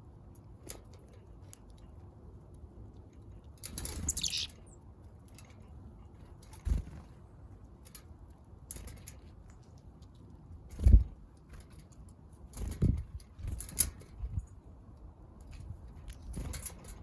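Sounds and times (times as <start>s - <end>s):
birds pecking: 3.8s - 4.8s
wing flutters: 3.8s - 4.8s
sharp clicks: 4.0s - 4.8s.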